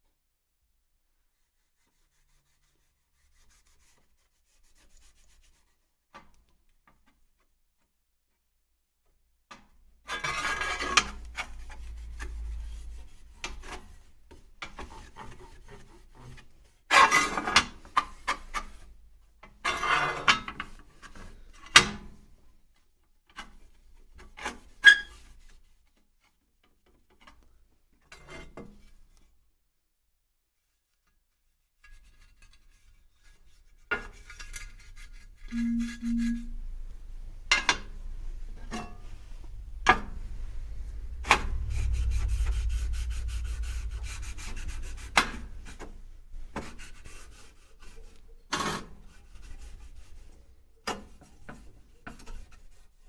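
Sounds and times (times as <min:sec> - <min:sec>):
scraping on hard surface: 0:37.7 - 0:47.6.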